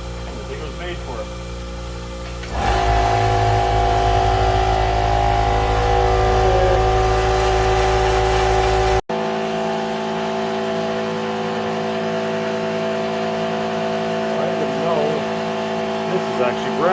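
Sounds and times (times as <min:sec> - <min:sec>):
air compressor humming: 0:00.0 - 0:16.9.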